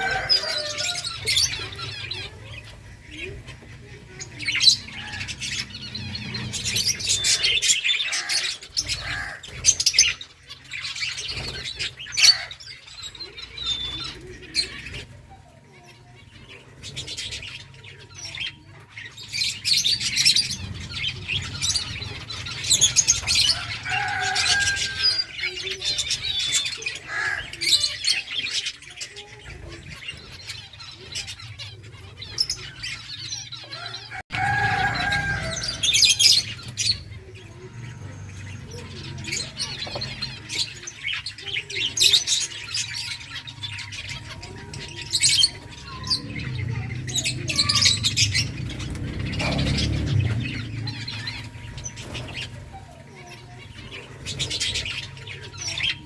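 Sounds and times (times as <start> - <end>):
finches chirping: 0.0 - 15.1, 34.7 - 56.0.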